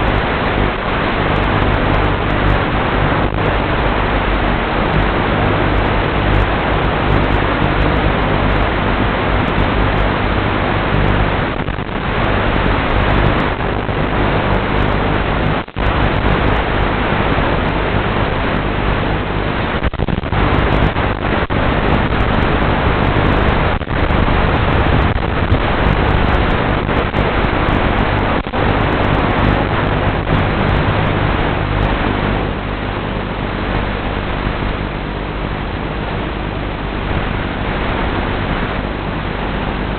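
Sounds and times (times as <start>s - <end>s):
radio static hiss: 0.0s - 39.9s.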